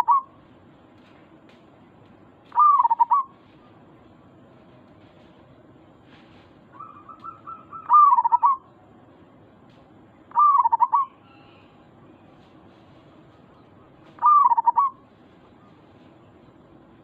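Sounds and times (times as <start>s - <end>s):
dove cooing: 0.0s - 0.4s, 2.5s - 3.9s, 6.8s - 8.7s, 10.3s - 11.8s, 14.1s - 15.8s.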